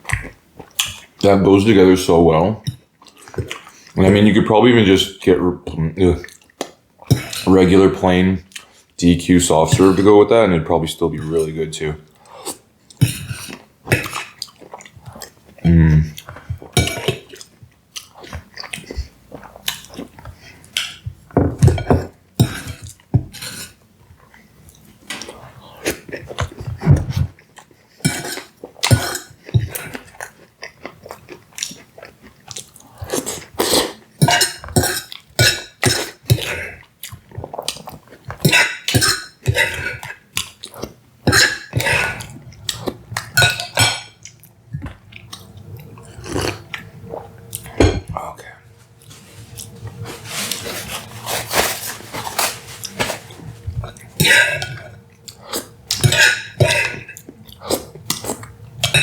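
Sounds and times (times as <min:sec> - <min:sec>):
chewing: 0:02.6 - 0:04.0, 0:12.1 - 0:21.0, 0:24.0 - 0:34.2, 0:35.0 - 0:38.6, 0:39.4 - 0:58.8
cutlery clinking on dishes: 0:16.8 - 0:17.2, 0:28.0 - 0:29.7, 0:34.2 - 0:36.5, 0:41.3 - 0:42.2, 0:54.2 - 0:54.9, 0:55.9 - 0:57.2.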